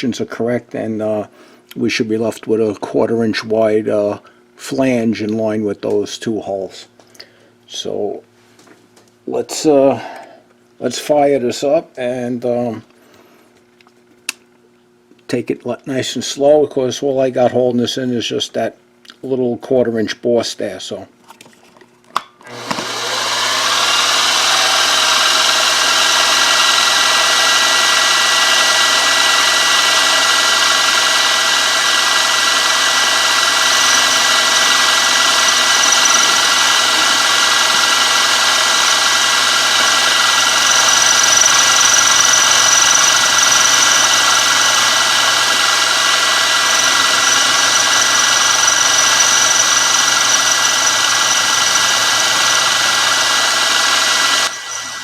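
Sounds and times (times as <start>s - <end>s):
milling machine spindle motor: 22.5s - 55.0s.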